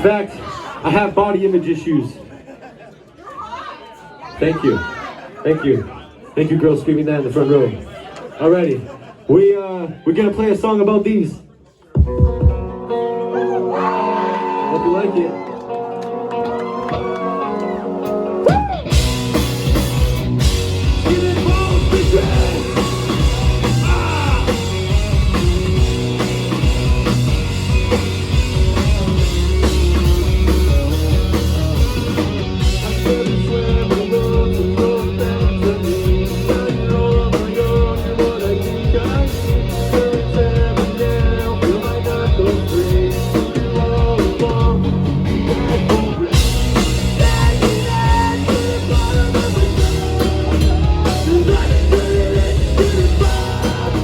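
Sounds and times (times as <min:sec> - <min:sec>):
drums: 0:11.6 - 0:13.2, 0:16.3 - 0:54.0
rock guitar: 0:11.9 - 0:54.0
bass guitar: 0:12.0 - 0:54.0.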